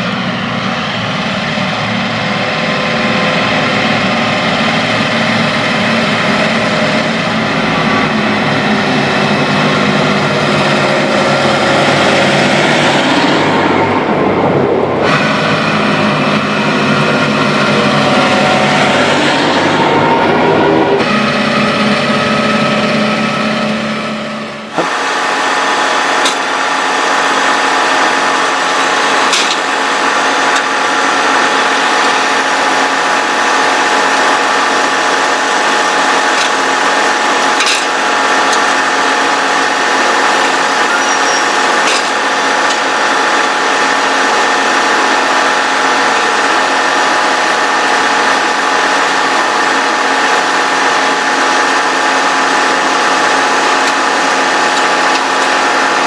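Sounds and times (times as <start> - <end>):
lower engine sound: 0.0 - 56.0
machine drone with high whine: 0.0 - 56.0.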